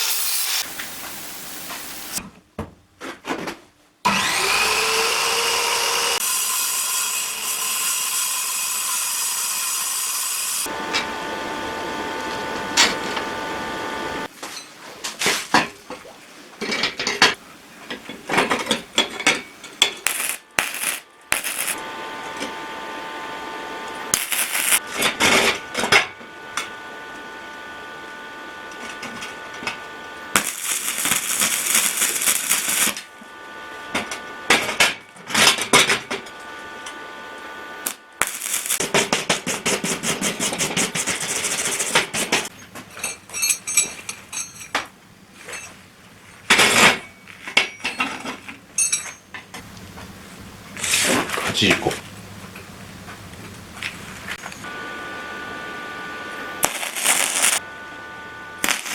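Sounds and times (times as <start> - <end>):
loud hissing: 0.0 - 2.2, 24.1 - 24.8, 30.4 - 33.0, 38.2 - 38.8
steady machine hum: 20.1 - 25.0, 25.6 - 34.4, 54.4 - 58.9
metal pieces clanking: 42.8 - 44.9.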